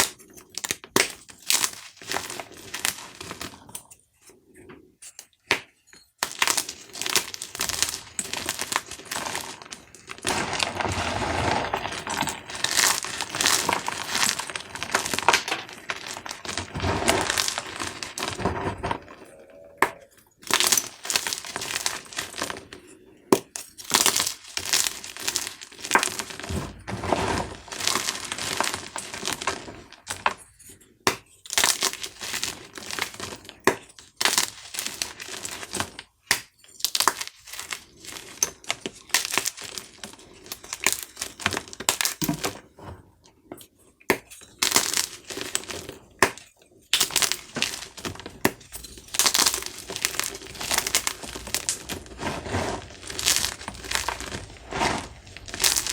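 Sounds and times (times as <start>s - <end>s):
chalk cubes crunching: 6.2s - 19.4s, 20.4s - 22.8s, 23.7s - 30.3s, 36.8s - 42.0s, 47.0s - 55.9s.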